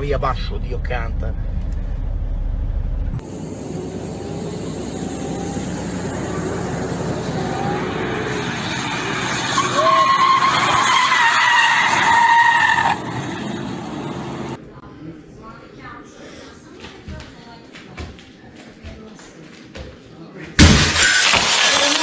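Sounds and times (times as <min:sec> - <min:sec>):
road vehicle running: 0:00.0 - 0:14.7
tyres skidding squeal: 0:03.9 - 0:14.5, 0:21.0 - 0:22.0.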